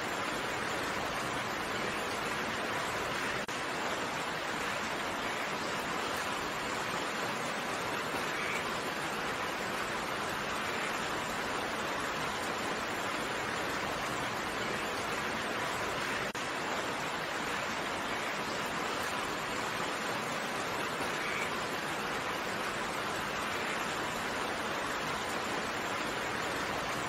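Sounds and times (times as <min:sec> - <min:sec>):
steady rain: 0:00.0 - 0:27.0.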